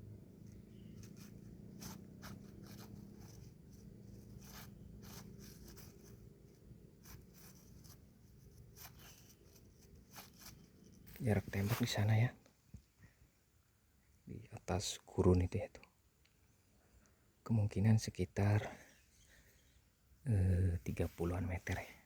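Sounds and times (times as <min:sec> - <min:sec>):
low steady hum: 0:00.0 - 0:14.7
rustling and scraping: 0:00.4 - 0:12.2.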